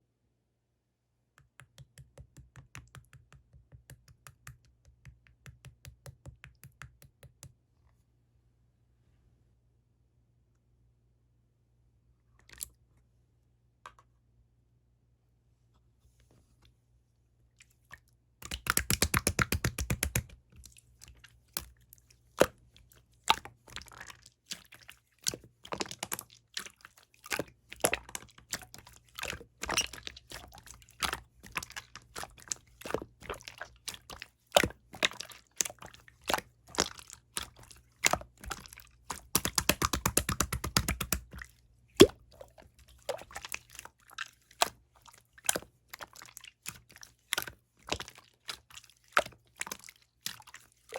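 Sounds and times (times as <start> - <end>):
slime squished by hand: 18.4 - 50.9
rapid crackling bubble pops: 18.5 - 20.3, 39.3 - 41.3.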